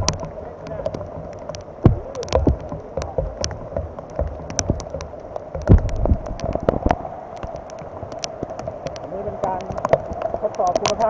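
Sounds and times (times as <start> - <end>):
heavy low thumps: 0.0 - 7.1
rain: 0.0 - 11.0
raindrops tapping on microphone: 0.0 - 11.0.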